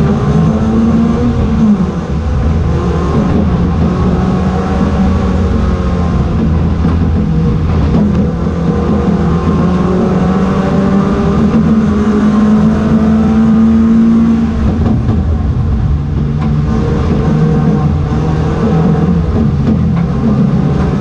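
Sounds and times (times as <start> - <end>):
race car engine accelerating: 0.0 - 21.0.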